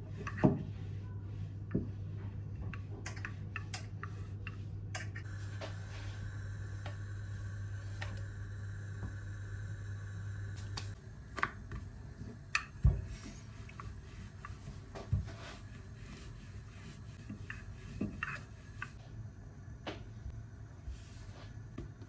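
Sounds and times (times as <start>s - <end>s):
electric hum: 5.2s - 22.0s.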